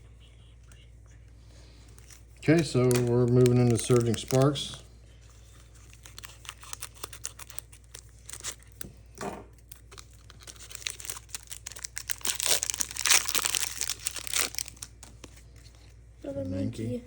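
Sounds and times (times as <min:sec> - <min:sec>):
foil wrapper crinkling and tearing: 0:01.8 - 0:08.9, 0:09.6 - 0:15.4.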